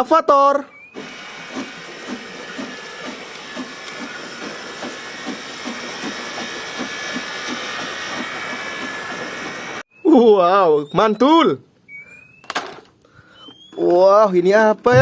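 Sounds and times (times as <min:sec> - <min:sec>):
train hiss: 0:01.0 - 0:09.8
train wheels clickety-clack: 0:01.3 - 0:09.6.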